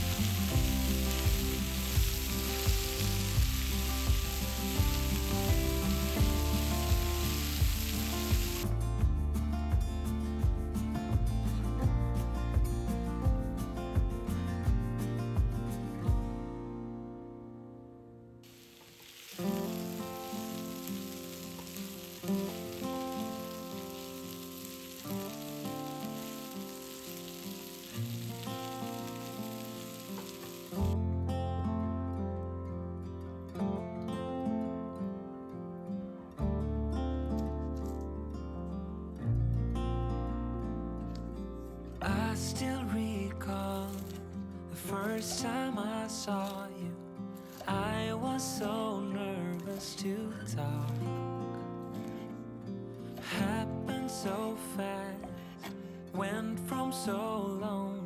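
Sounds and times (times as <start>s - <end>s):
food sizzling in a frying pan: 0.0s - 8.6s, 18.4s - 31.0s, 42.3s - 44.3s
background music with a beat: 0.0s - 16.7s
acoustic guitar music: 0.0s - 58.0s.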